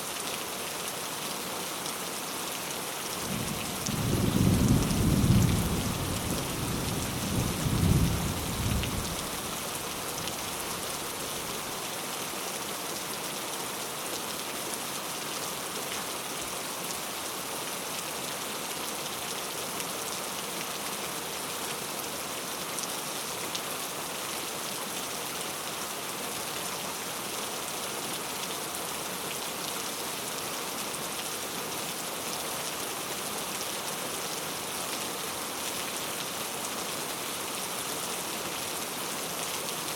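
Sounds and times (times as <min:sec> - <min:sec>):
steady rain hiss: 0:00.0 - 0:39.9
low thunder rumble: 0:03.3 - 0:09.4.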